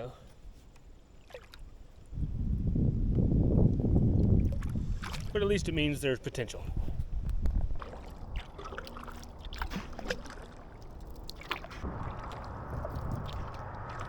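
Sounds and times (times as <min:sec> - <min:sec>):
paddle splashing in water: 0:04.4 - 0:05.4, 0:07.6 - 0:14.0
low wash of water: 0:07.6 - 0:14.0
low rumble: 0:11.8 - 0:14.0.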